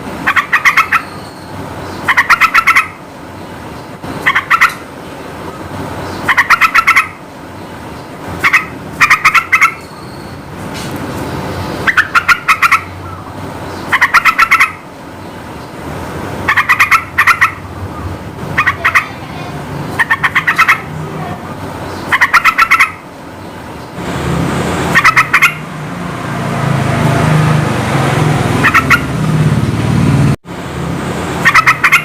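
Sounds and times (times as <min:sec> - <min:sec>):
bird chattering song: 0:00.2 - 0:15.8, 0:16.4 - 0:24.0, 0:24.9 - 0:25.6, 0:28.6 - 0:29.1, 0:31.4 - 0:32.0.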